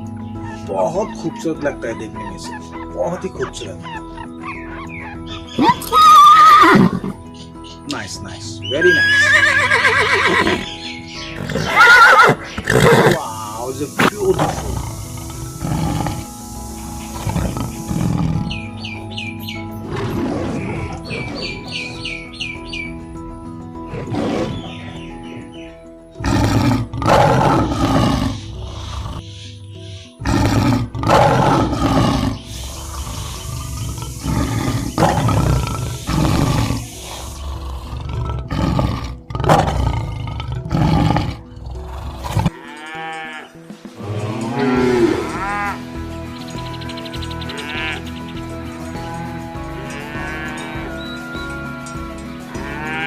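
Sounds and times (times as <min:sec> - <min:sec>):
background music: 0:00.0 - 0:53.0
big cat roaring: 0:26.2 - 0:29.2, 0:30.2 - 0:42.5.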